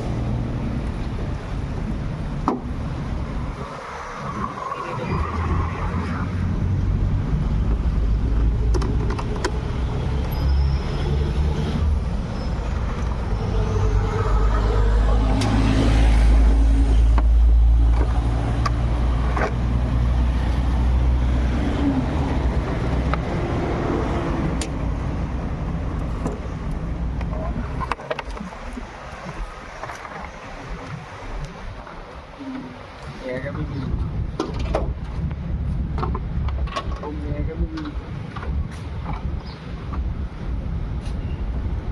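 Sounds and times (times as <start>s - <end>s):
vehicle engine and road rumble: 0.0s - 41.9s.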